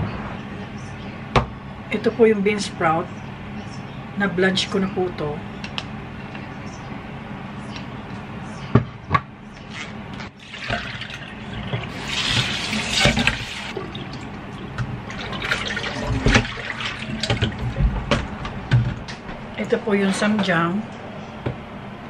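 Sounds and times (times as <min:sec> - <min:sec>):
tap water running into sink: 0:10.4 - 0:18.2.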